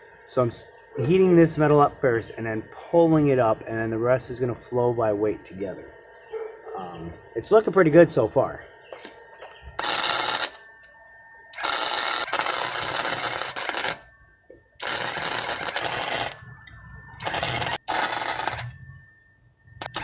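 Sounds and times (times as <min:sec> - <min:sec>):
welding arc crackling: 0:09.8 - 0:10.7, 0:11.5 - 0:14.1, 0:14.8 - 0:19.0, 0:19.8 - 0:20.0.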